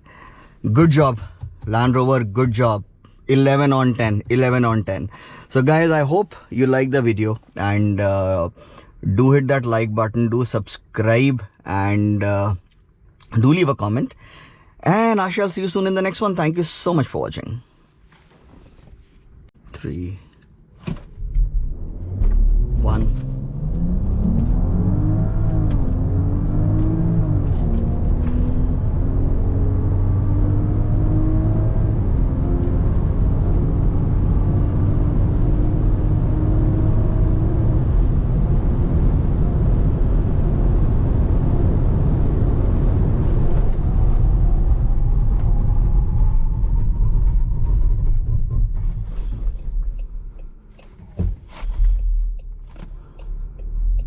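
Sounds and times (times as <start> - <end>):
road and wind noise: 20.4 - 54.0
car engine accelerating: 21.2 - 51.0.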